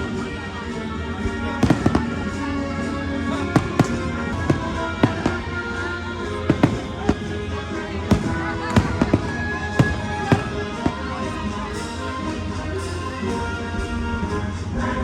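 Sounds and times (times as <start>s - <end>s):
orchestral music over loudspeakers: 0.0s - 15.0s
fireworks bangs: 1.2s - 12.2s.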